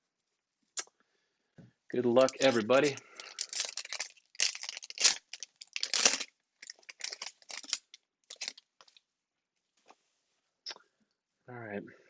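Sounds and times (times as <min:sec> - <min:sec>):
foil wrapper tearing and crinkling: 0:02.2 - 0:08.6.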